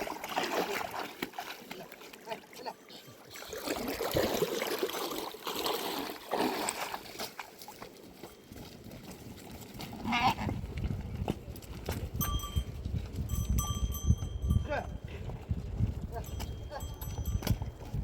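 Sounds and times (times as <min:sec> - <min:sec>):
water splashing and sloshing: 0:00.0 - 0:12.0
sheep bleating: 0:10.0 - 0:10.5.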